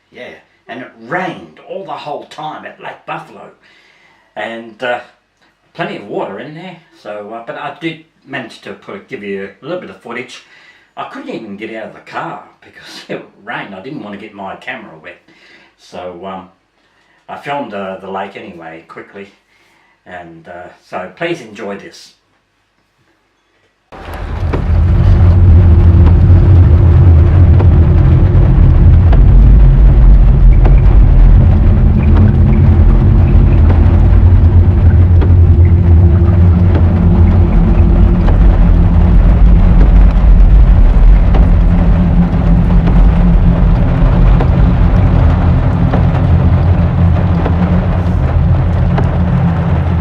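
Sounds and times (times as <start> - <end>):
rain drumming on a car roof: 24.0 - 50.0.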